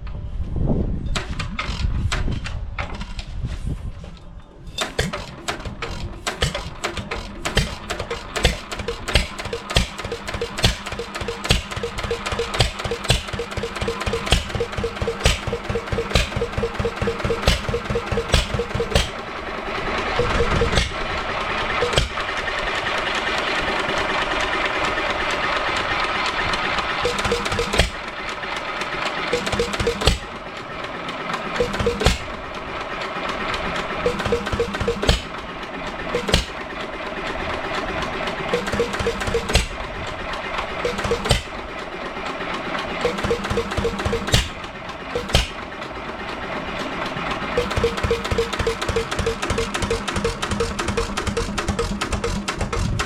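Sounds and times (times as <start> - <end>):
engine clattering while coasting: 4.7 - 53.0
stationary engine firing bangs: 4.8 - 19.5, 27.0 - 28.2, 40.8 - 41.6.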